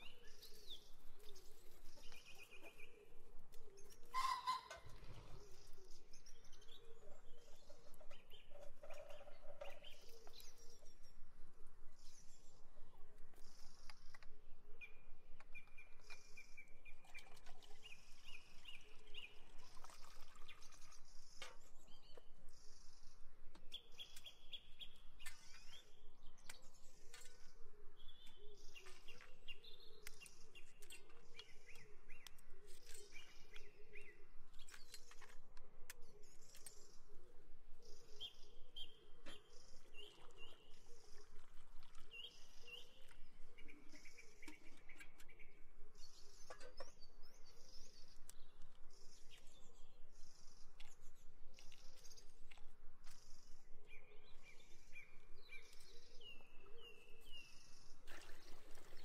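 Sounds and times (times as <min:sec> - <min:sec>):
birds chirping and singing: 0:00.0 - 0:11.2.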